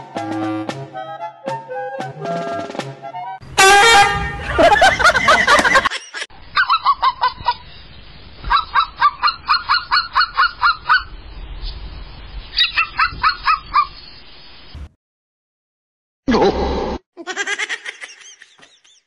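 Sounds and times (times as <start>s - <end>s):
rapid goose-like honking: 3.6s - 4.6s.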